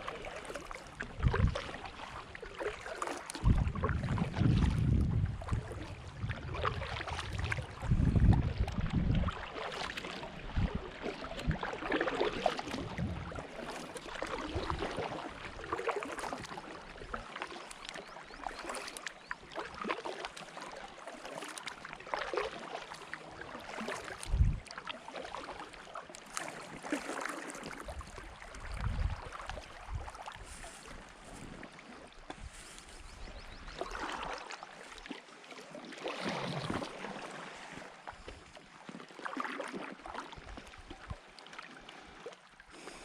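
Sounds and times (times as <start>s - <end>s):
paddles splashing in water: 0.0s - 43.0s
wind buffeting microphone: 1.0s - 1.7s, 3.4s - 9.4s, 12.6s - 13.4s, 24.2s - 24.7s, 27.9s - 31.6s.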